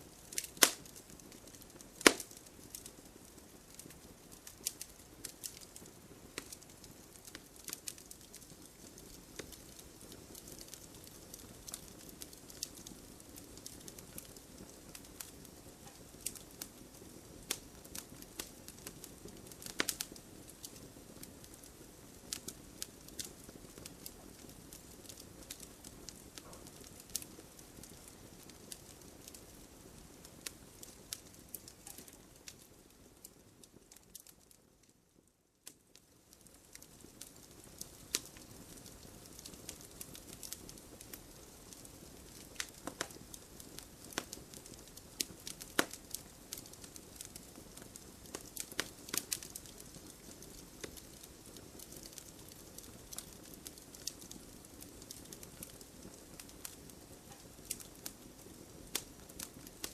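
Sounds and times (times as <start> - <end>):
fireplace fire crackling: 0.0 - 59.9
sharp pops and snaps: 0.3 - 2.8, 42.2 - 43.3, 44.0 - 46.7.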